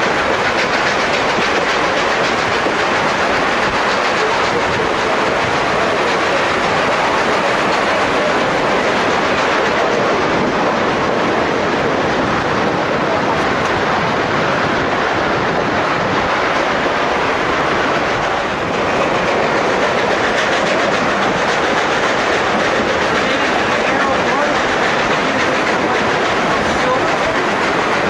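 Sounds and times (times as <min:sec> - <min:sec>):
train rumbling and rattling on rails: 0:00.0 - 0:28.0.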